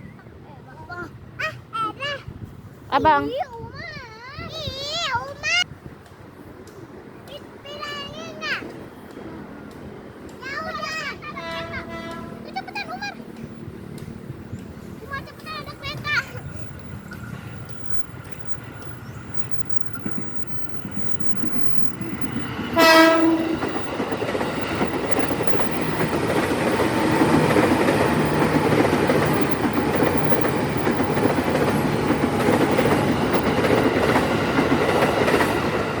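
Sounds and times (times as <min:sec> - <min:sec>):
train wheels clattering on rails: 0:04.6 - 0:36.0
train horn blast: 0:11.2 - 0:12.6, 0:22.7 - 0:24.1.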